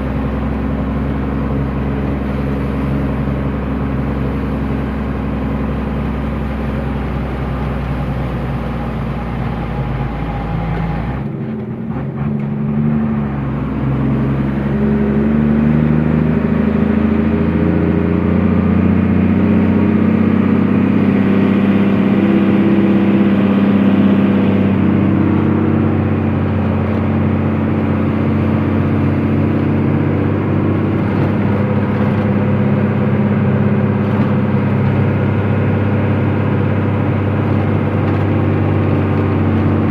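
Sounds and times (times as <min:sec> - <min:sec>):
truck engine accelerating: 0:00.0 - 0:39.9.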